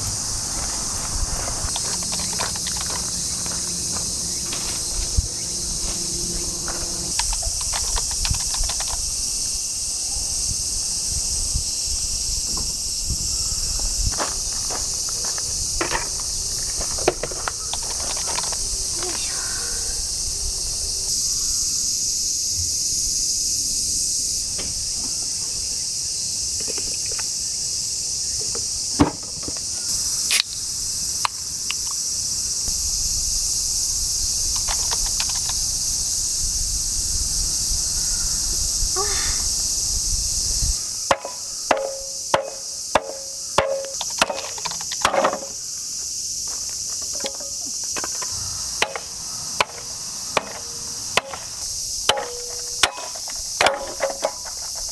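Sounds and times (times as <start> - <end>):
insects chirping: 0.0 - 54.9
sharp knocks: 41.1 - 45.6.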